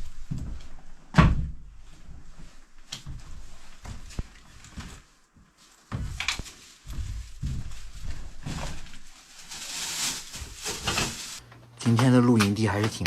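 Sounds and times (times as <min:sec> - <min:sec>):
rustling of camping gear: 0:01.8 - 0:11.6.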